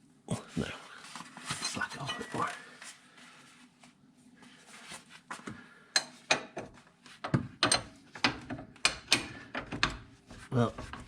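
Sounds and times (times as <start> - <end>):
spanner clicking on a nut: 7.6 - 10.0.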